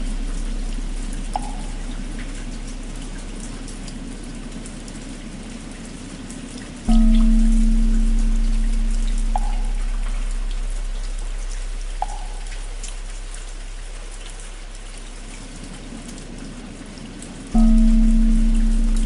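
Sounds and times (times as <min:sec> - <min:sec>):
deep temple bell: 0:00.0 - 0:03.8, 0:06.9 - 0:13.9, 0:17.6 - 0:19.0
steady rain: 0:00.0 - 0:19.0.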